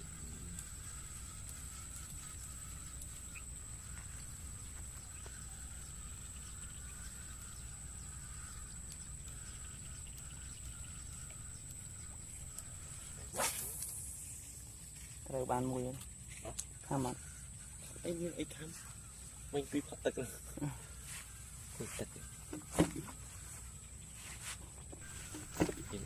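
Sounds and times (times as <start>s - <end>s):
wavering mid-pitched drone: 0.0s - 14.8s, 25.0s - 26.0s
high-pitched whine: 0.0s - 15.6s, 25.0s - 26.0s.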